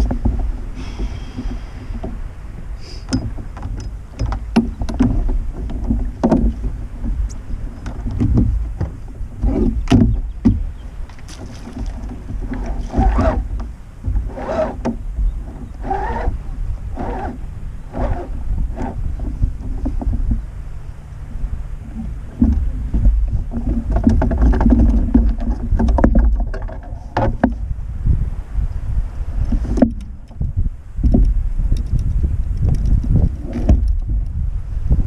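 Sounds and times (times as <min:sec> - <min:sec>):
paddle strokes splashing water: 0:00.0 - 0:26.2
steady low rumble: 0:00.0 - 0:35.0.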